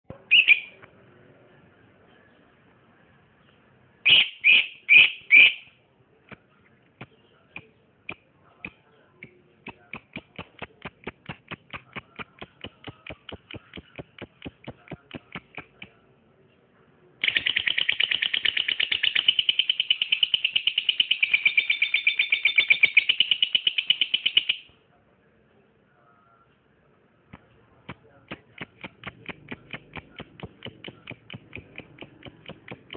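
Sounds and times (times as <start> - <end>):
bird calling and chattering: 0.1 - 0.8, 4.0 - 5.7, 7.0 - 15.9, 17.2 - 24.7, 28.3 - 32.9.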